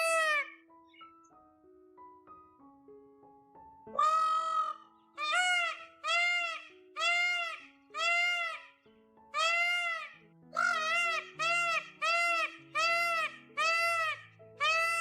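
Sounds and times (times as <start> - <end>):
peacock calling: 0.0 - 0.6, 3.9 - 8.8, 9.4 - 15.0
soft piano music: 0.0 - 15.0.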